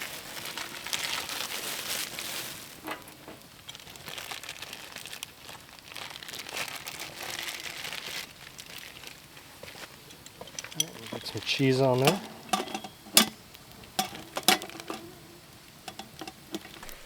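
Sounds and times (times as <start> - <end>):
plastic packaging crinkling: 0.0 - 17.0
sharp plastic crackles: 0.0 - 17.0.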